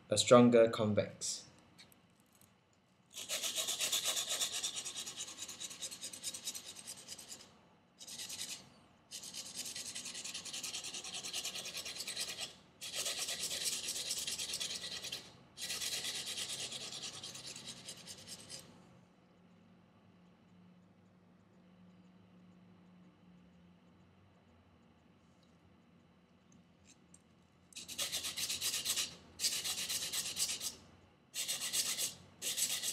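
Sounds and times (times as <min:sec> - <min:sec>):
knife blade rasping on sandpaper: 0:03.2 - 0:18.7, 0:27.8 - 0:30.8, 0:31.4 - 0:32.9.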